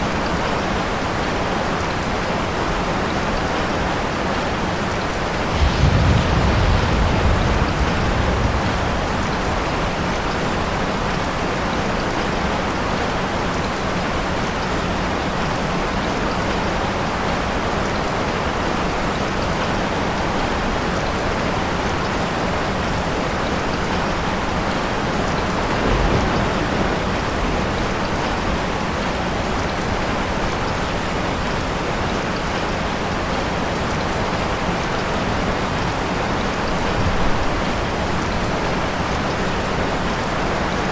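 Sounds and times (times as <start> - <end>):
heavy rain falling: 0.0 - 40.9
thunder rumble: 5.0 - 12.6, 23.3 - 30.7.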